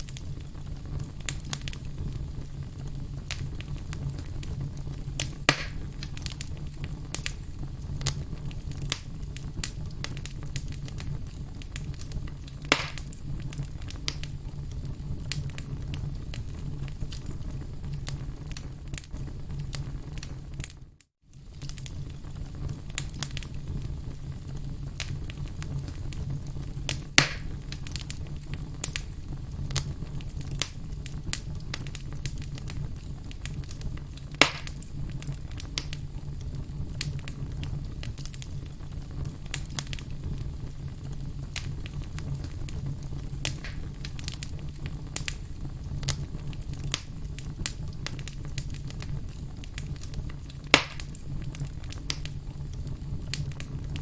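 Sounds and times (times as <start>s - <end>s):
firewood crackling and popping: 0.0s - 54.0s.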